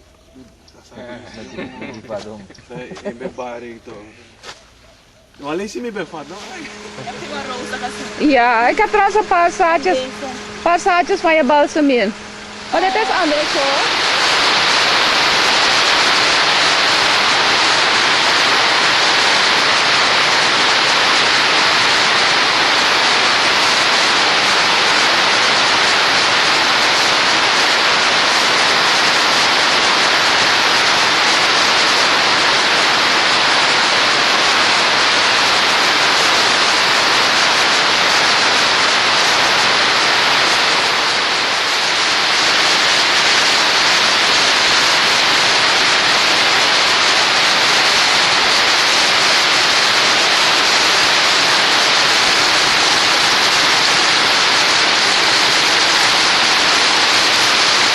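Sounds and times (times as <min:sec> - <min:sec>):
loud rushing hiss: 0:00.0 - 0:57.9.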